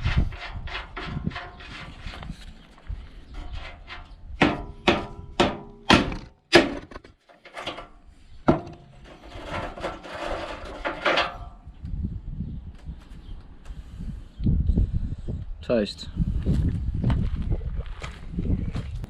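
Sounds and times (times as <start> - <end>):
hammer striking metal: 4.4 - 6.8.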